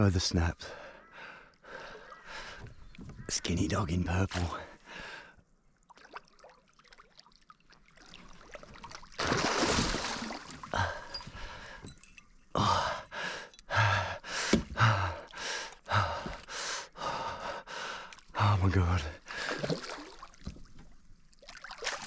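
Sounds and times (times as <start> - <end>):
person breathing heavily: 0.6 - 2.7, 4.6 - 5.4, 10.7 - 11.9, 12.6 - 19.6.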